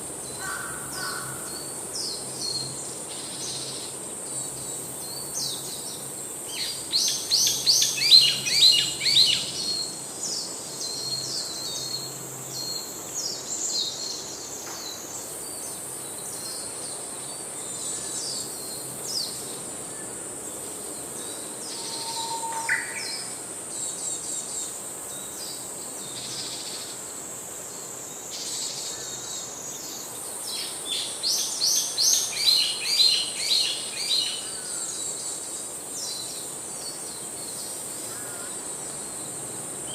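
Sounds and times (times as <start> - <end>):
high-pitched insect buzz: 21.2 - 24.7.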